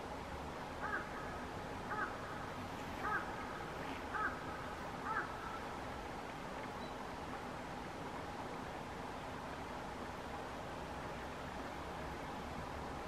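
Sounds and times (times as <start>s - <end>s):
bird calling clear notes: 6.8s - 7.0s.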